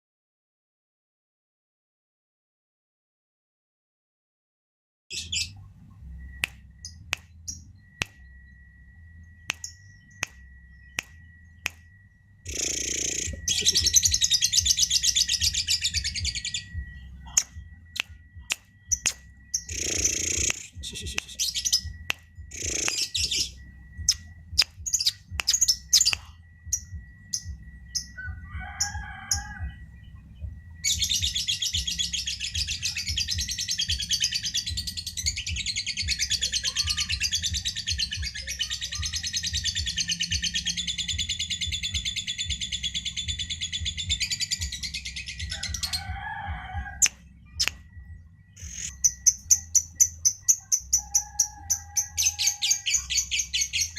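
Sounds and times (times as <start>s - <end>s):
faint steady high tone: 5.1s - 45.9s
low hum: 5.1s - 51.0s
parrot chips and shrill trills: 48.6s - 53.9s.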